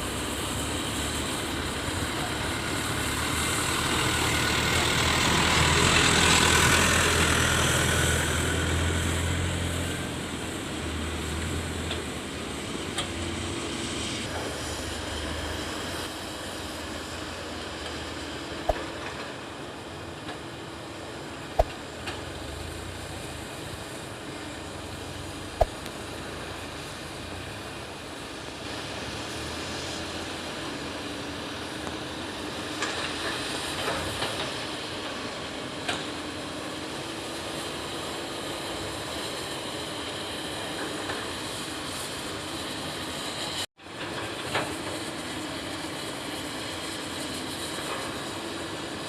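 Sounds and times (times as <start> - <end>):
excavator engine droning: 0.0 - 49.0.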